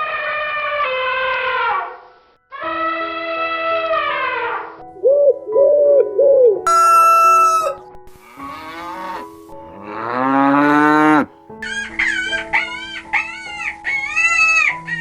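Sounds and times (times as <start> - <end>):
quick bending animal calls: 6.7 - 7.8
short high-pitched animal call: 6.7 - 7.8
cow mooing: 6.7 - 11.3.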